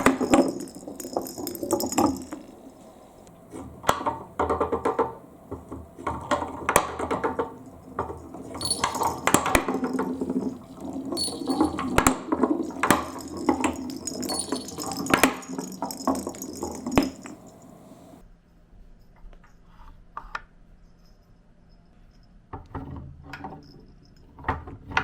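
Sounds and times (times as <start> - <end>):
marbles rolling on a track: 0.0 - 2.5, 6.1 - 17.6.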